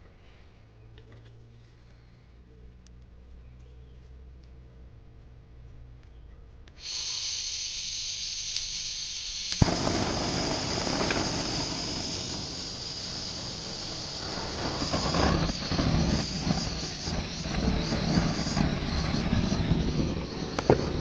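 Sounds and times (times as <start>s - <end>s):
gas hissing from nozzle: 6.8s - 21.0s
torch burning with rushing noise: 6.8s - 21.0s.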